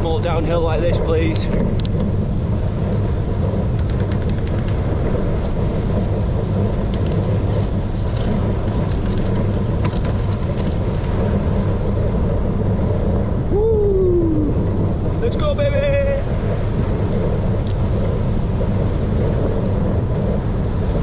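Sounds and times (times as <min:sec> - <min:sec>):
bicycle tyres rolling: 0:00.0 - 0:21.0
wind rushing over microphone: 0:00.0 - 0:21.0
small clicks and rattles: 0:03.7 - 0:11.2.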